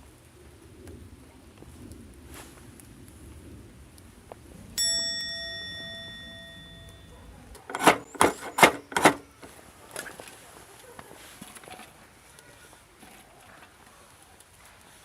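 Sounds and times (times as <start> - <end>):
metallic ding: 4.8 - 7.1, 7.7 - 9.4
short crunching sounds: 7.6 - 10.4.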